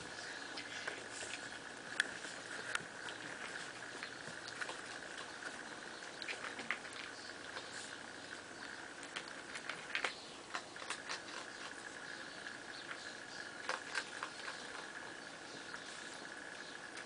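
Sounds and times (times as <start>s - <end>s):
paws and claws scuffling: 0.0s - 11.8s.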